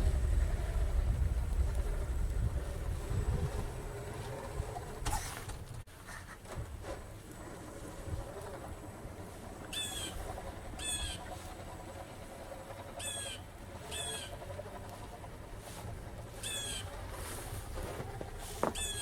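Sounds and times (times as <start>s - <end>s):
faint low rumble: 0.0s - 5.9s
bird squeaky calls: 9.7s - 10.2s, 10.8s - 11.4s, 13.0s - 14.4s, 16.4s - 16.9s, 18.7s - 19.0s.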